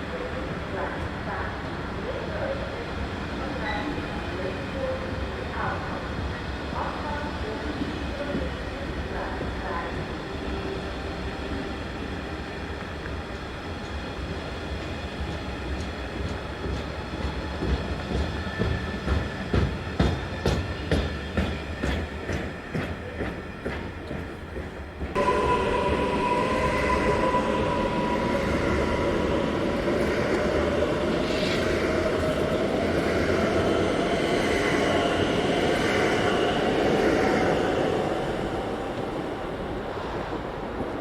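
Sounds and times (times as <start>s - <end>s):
train running noise: 12.6s - 41.0s.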